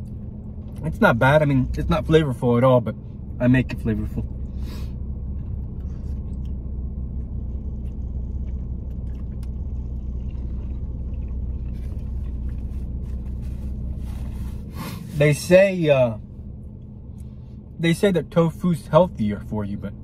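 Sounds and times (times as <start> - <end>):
car engine idling: 0.0 - 20.0
paper napkin rustling: 11.8 - 15.4.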